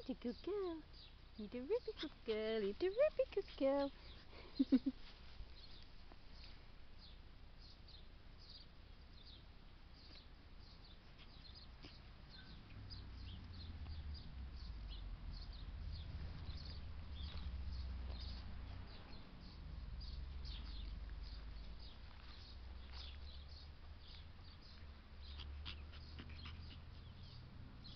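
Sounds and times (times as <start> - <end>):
small birds chirping: 0.0 - 27.9
low rumble: 13.0 - 23.8.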